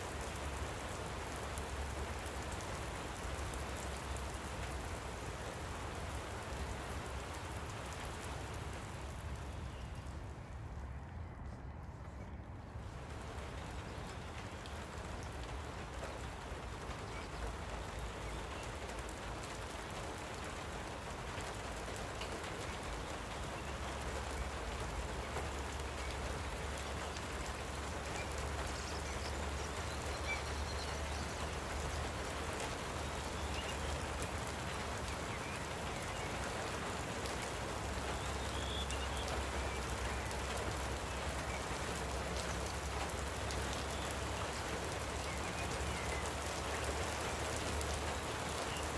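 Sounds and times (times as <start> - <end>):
light rain patter: 0.0 - 48.9.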